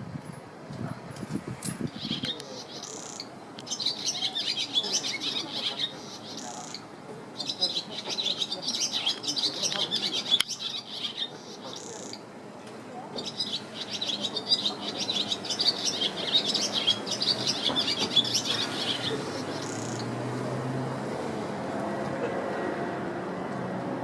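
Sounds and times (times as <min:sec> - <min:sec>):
swallows twittering: 0:01.9 - 0:12.2, 0:13.2 - 0:20.1.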